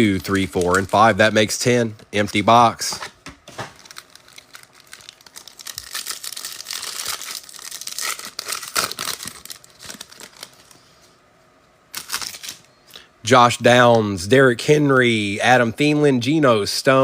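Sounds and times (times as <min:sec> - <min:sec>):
plastic wrapper tearing and crinkling: 0:00.1 - 0:01.2, 0:03.5 - 0:10.8, 0:11.9 - 0:12.7.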